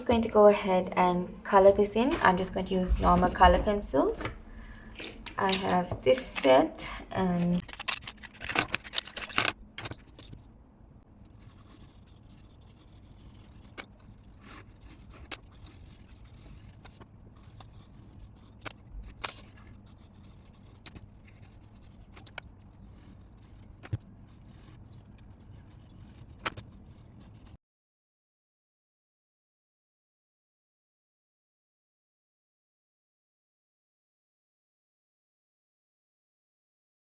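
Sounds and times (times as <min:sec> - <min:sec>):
low steady hum: 0:00.0 - 0:27.6
pencils clicking and tapping: 0:02.0 - 0:10.4, 0:11.2 - 0:27.5
colour pencils scratching on card: 0:05.0 - 0:10.5, 0:11.1 - 0:27.6.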